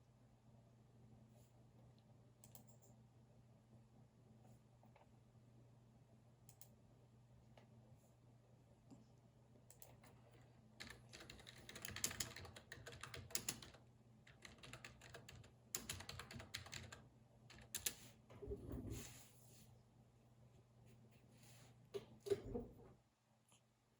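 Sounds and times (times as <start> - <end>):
faint low hum: 0.0 - 23.9
keyboard typing: 9.7 - 18.0.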